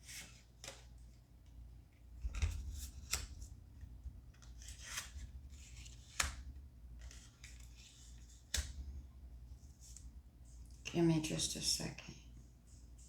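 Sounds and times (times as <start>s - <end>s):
cards shuffling rustles: 0.0s - 1.0s, 2.2s - 3.6s, 4.3s - 8.8s
card sharp snaps: 6.0s - 6.5s, 8.5s - 8.8s.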